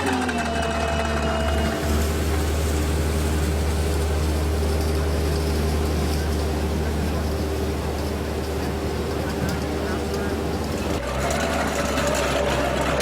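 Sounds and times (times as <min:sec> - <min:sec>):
loader engine drone: 0:00.0 - 0:13.0
steady noisy haze: 0:01.4 - 0:11.0.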